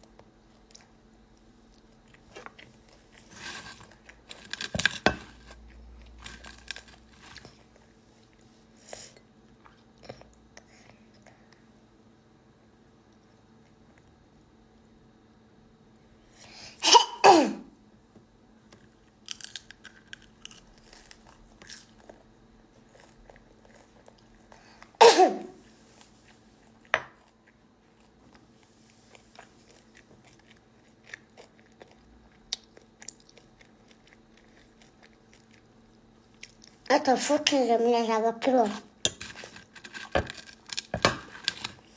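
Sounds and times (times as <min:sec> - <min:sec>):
person coughing: 0:16.8 - 0:17.7, 0:25.0 - 0:25.6.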